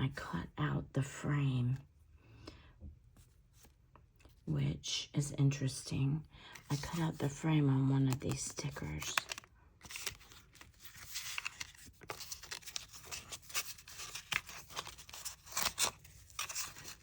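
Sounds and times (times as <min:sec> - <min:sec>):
paper rustling and crinkling: 0:06.6 - 0:07.2, 0:08.1 - 0:17.0.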